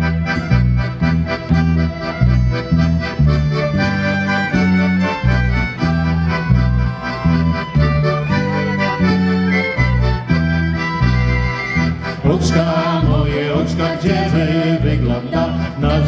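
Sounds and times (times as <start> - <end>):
accordion folk melody: 0.0 - 16.0.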